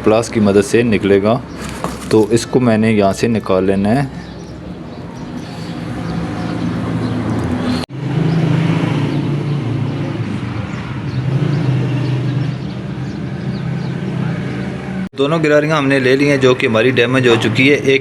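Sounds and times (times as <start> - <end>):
vehicle engine running: 4.2 - 11.2.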